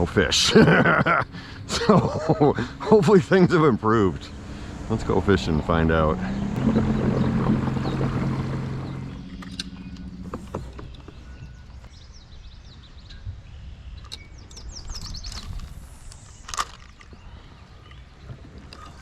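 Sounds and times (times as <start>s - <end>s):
birds chirping: 0.0s - 19.0s
low steady hum: 0.0s - 19.0s
open-water ambience: 0.0s - 19.0s.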